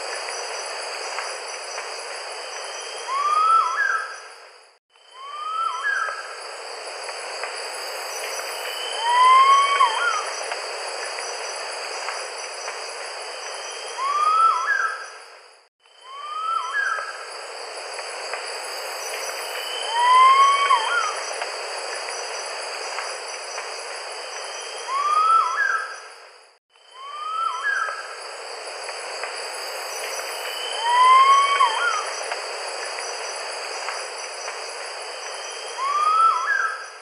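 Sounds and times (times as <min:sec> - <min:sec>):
high insect drone: 0:00.0 - 0:37.0
rising whistled bird calls: 0:02.6 - 0:04.3, 0:05.1 - 0:06.4, 0:08.5 - 0:10.5, 0:13.5 - 0:15.2, 0:16.0 - 0:17.2, 0:19.5 - 0:21.3, 0:24.4 - 0:26.1, 0:26.8 - 0:28.2, 0:30.4 - 0:32.3, 0:35.3 - 0:37.0.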